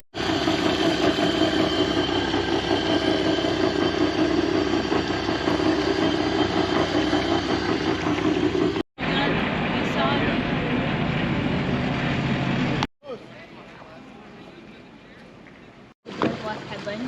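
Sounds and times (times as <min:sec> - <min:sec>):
engine droning: 0:00.2 - 0:12.8.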